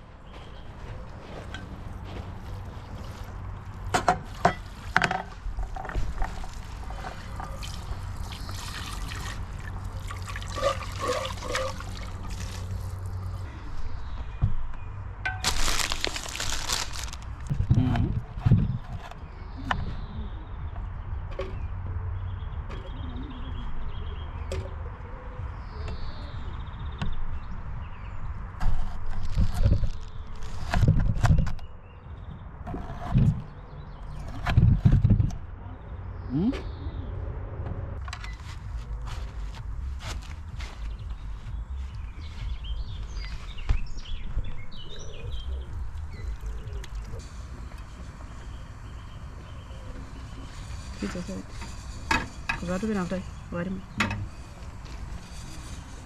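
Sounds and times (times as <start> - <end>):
steady low rumble: 34.6 - 56.0
small birds chirping: 38.3 - 56.0.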